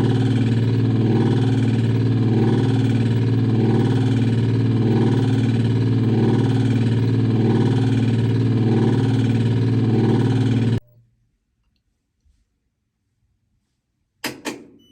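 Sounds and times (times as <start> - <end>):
washing machine motor humming and grinding: 0.0 - 10.8.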